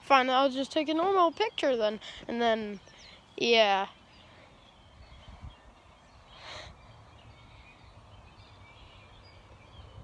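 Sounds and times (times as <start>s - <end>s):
faint bird chirps: 0.1s - 10.0s
short breathy hiss: 6.3s - 6.8s.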